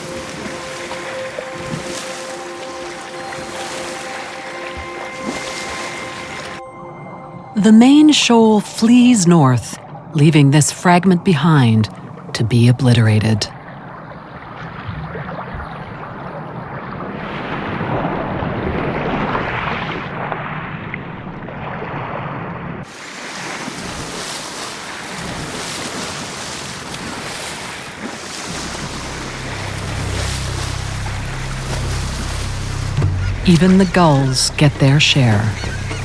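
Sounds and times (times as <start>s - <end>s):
sea water surging and splashing: 0.0s - 36.0s
low hum: 28.5s - 36.0s.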